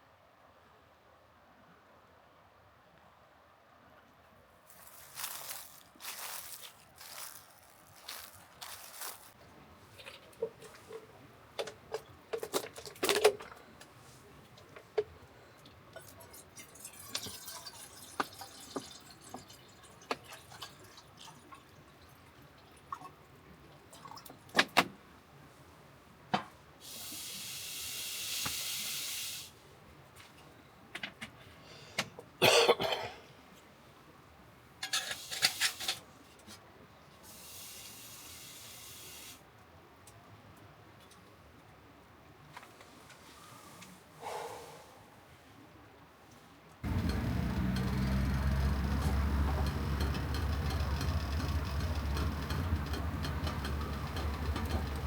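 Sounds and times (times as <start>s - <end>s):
steady rushing hiss: 26.8s - 29.6s, 37.2s - 39.5s.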